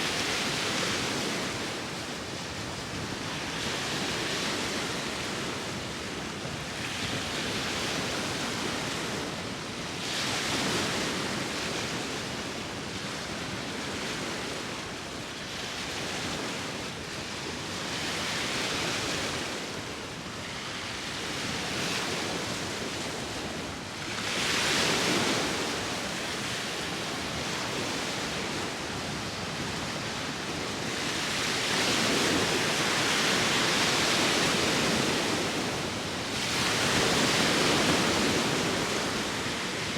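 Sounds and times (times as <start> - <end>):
sea waves washing on shore: 0.0 - 39.9
wind: 0.0 - 39.9.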